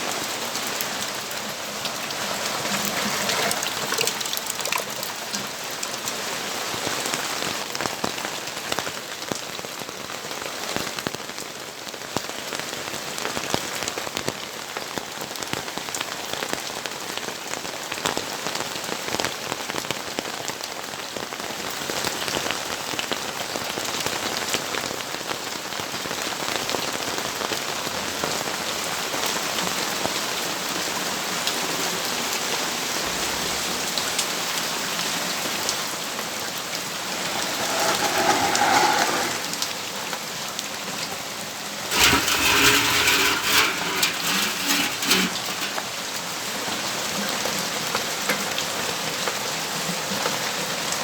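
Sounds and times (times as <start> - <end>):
uneven clattering burst: 41.9 - 46.0.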